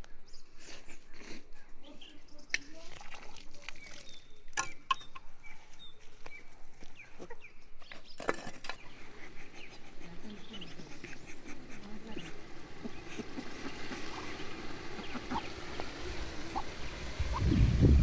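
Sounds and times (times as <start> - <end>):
chickens clucking: 8.7 - 18.0.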